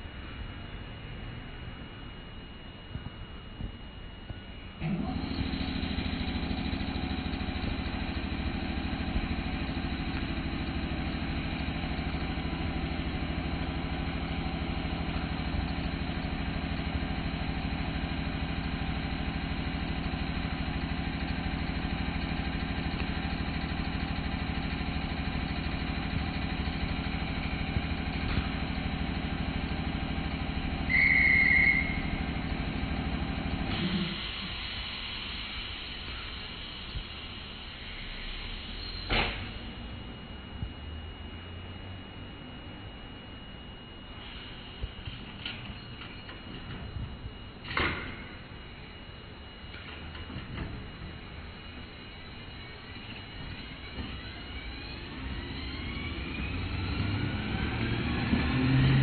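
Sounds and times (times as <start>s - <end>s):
train machinery hum: 0.0s - 59.0s
short loud high tone: 30.9s - 32.2s.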